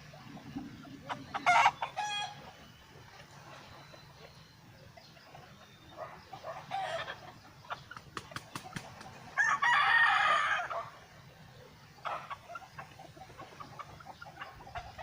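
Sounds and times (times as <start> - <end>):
chicken clucking: 0.0 - 3.2, 3.8 - 9.1, 11.6 - 15.0
rooster crowing: 9.4 - 10.9.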